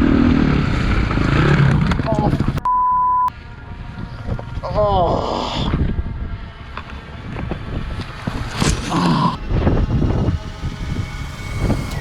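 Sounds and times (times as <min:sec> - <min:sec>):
wind buffeting camera: 0:00.0 - 0:02.6, 0:03.4 - 0:12.0
dirt bike engine running: 0:00.0 - 0:02.7, 0:05.7 - 0:12.0.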